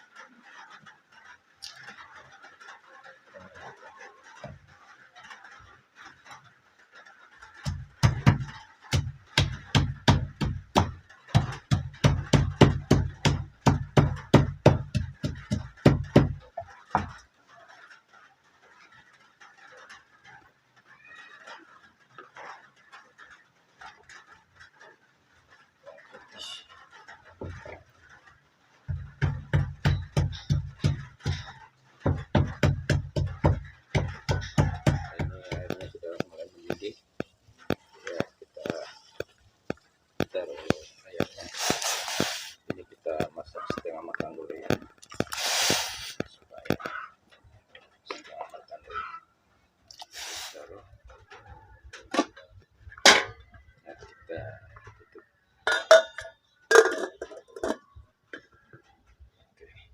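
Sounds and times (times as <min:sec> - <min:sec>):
pestle pounding in stone mortar: 0:07.6 - 0:16.4, 0:28.9 - 0:36.3
heavy strikes on kitchen surface: 0:07.7 - 0:16.4, 0:28.9 - 0:36.0.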